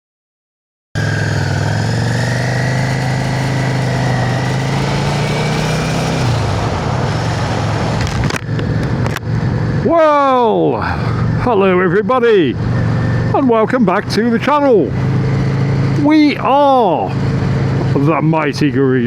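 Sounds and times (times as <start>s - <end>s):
motorcycle engine running: 1.0s - 18.3s.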